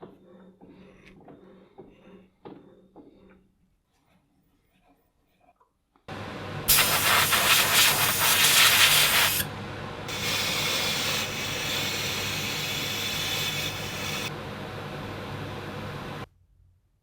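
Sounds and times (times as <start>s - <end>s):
machine humming: 6.1s - 16.3s
compressed air blasts: 6.7s - 9.5s, 10.1s - 14.3s.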